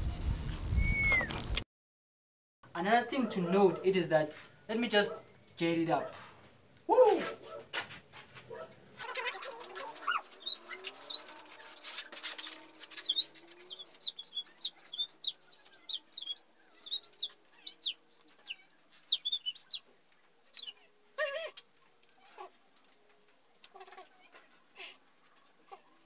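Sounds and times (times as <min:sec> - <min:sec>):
small bird chirping: 0:09.2 - 0:20.9.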